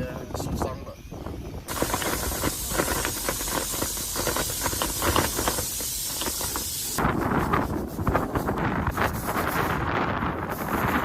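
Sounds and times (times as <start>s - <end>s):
wind buffeting microphone: 0.0s - 11.0s
pressure cooker steam hiss: 1.7s - 9.8s.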